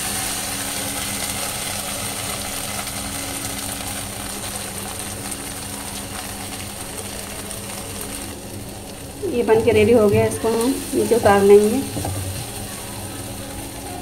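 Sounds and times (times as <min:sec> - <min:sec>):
food sizzling in a pan: 0:00.0 - 0:14.0
low steady hum: 0:04.2 - 0:14.0.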